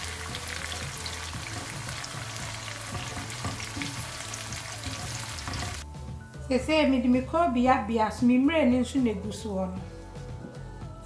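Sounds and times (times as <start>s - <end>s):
fish and onions sizzling in oil: 0.0s - 5.8s
spatula stirring: 0.6s - 5.8s.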